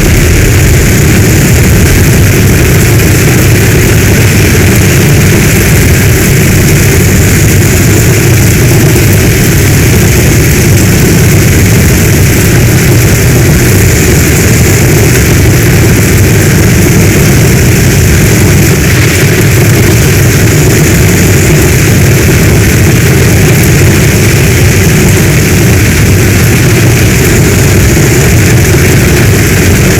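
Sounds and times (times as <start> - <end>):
deep low rumble: 0.0 - 29.9
heavy rain falling: 0.0 - 29.9.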